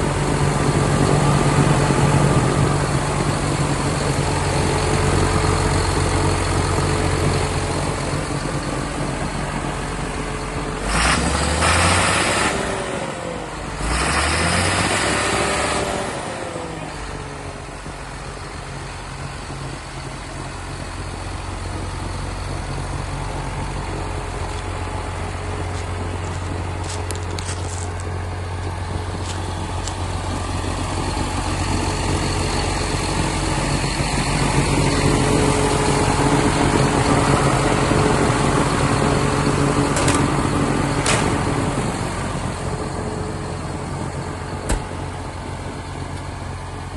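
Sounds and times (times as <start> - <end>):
tractor diesel engine idling: 0.0 - 46.9
engine revving with hiss: 10.8 - 16.9.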